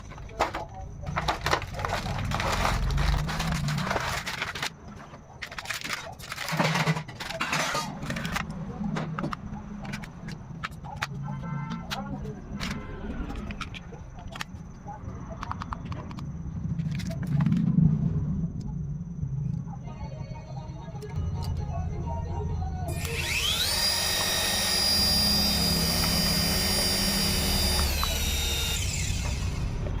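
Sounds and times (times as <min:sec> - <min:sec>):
packaging rustling and crinkling: 0:00.0 - 0:08.4
toy helicopter motor whining: 0:22.9 - 0:30.0.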